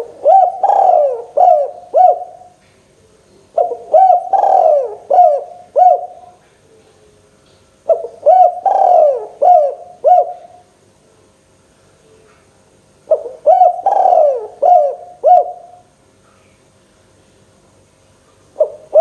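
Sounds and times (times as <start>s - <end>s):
dove cooing: 0.0s - 2.6s, 3.5s - 6.9s, 7.9s - 10.6s, 13.1s - 15.8s, 18.6s - 19.0s.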